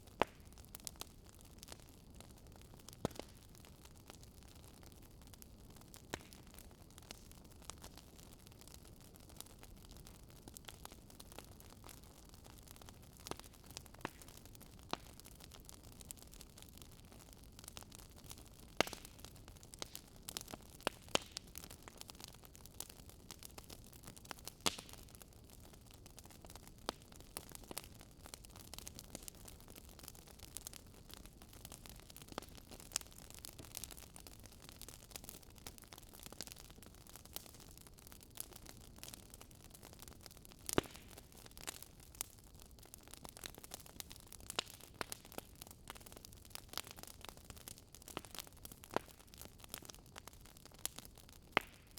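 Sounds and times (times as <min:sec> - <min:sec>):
wood fire crackling: 0:00.0 - 0:51.9.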